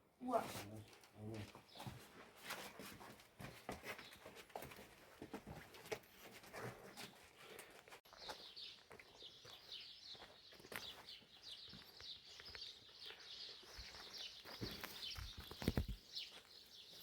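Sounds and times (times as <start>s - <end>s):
small birds chirping: 0.2s - 2.1s, 6.2s - 17.0s.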